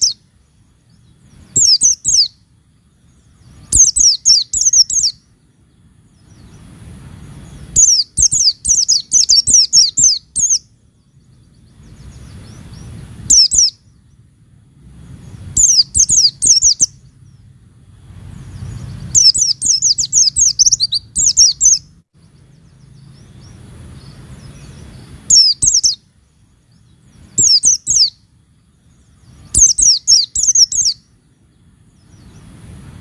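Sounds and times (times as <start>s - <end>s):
songbird chirping: 0.0s - 33.0s.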